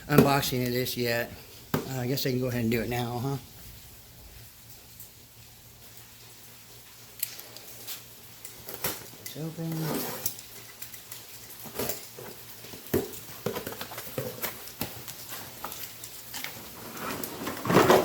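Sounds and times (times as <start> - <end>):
cardboard rustling: 11.6 - 18.0.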